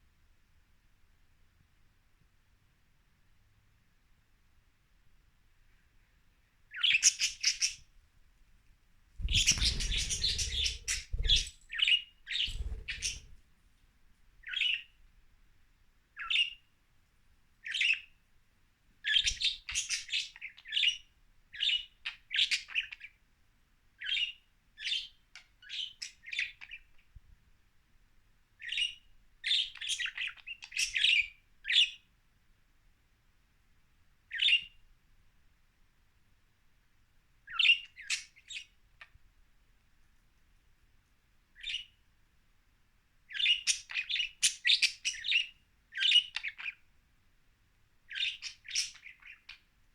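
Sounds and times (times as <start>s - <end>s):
budgerigars chirping: 6.7s - 7.9s, 9.2s - 13.4s, 14.4s - 14.9s, 19.0s - 21.0s, 28.6s - 32.0s, 43.3s - 46.8s, 48.1s - 49.6s.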